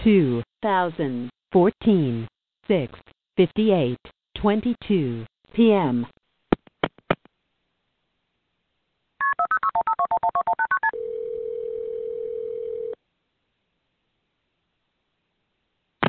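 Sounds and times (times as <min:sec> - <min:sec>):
telephone ringing tone: 0:09.2 - 0:13.0
touch-tone dialing beeps: 0:09.2 - 0:13.0.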